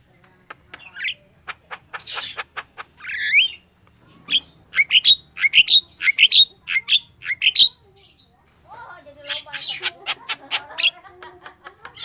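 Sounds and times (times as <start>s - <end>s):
bird singing chirps: 2.0s - 8.4s.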